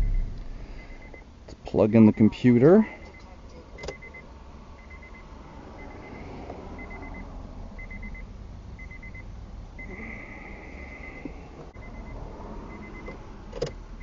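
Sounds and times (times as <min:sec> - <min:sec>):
car warning chime beeping: 0:00.0 - 0:01.3, 0:01.9 - 0:10.1, 0:10.9 - 0:13.8
car engine idling: 0:00.0 - 0:05.2.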